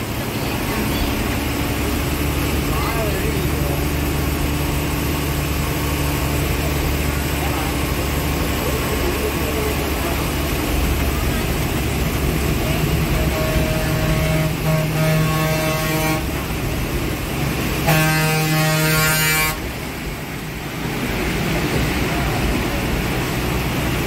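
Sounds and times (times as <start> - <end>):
bus engine running: 0.0 - 24.0
heavy rain: 0.0 - 24.0
vehicle horn blasts: 12.8 - 16.6, 17.8 - 19.7.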